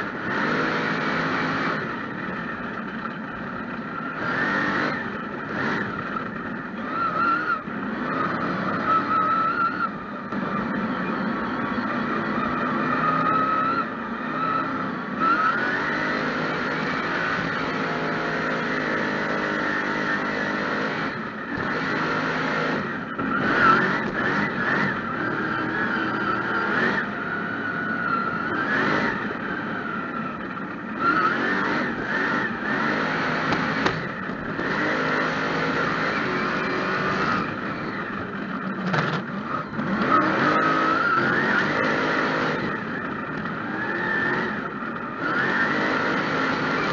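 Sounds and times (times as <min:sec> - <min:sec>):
truck engine revving hard: 0:00.0 - 0:46.9.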